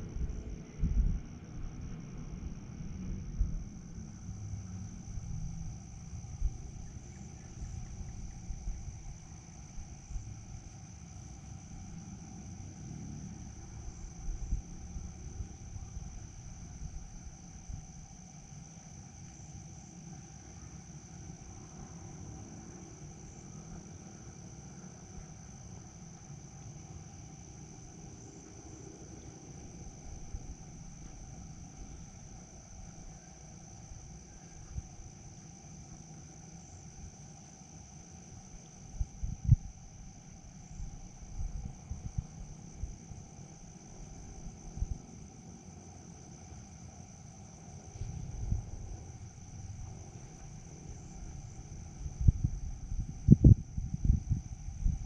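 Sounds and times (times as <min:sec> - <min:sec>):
crickets chirring: 0:00.0 - 0:55.0
low rumble: 0:47.8 - 0:55.0.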